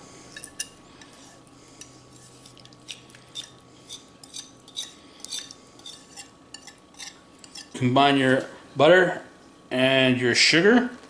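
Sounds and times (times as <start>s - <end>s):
utensil scraping against a bowl: 0.3s - 7.8s.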